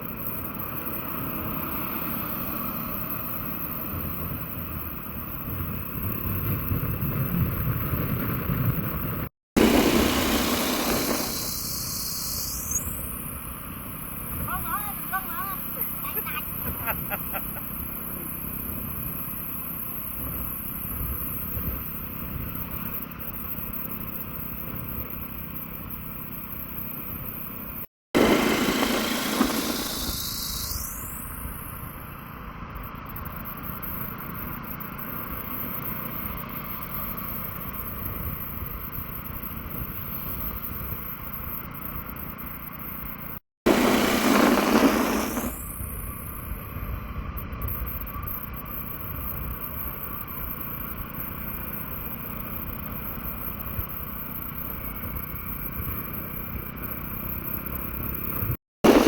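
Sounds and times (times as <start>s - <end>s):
burst of hiss: 9.6s - 21.6s, 28.2s - 32.0s, 43.7s - 46.4s.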